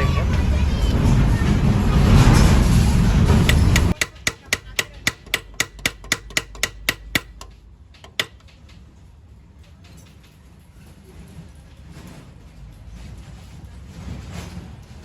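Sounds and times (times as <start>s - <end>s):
loud rushing noise: 0.0s - 4.0s
light metallic tapping: 3.4s - 8.8s.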